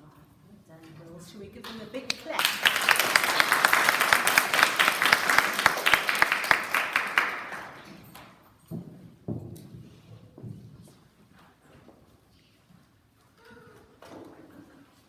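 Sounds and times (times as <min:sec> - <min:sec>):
audience applauding: 0:02.1 - 0:08.2.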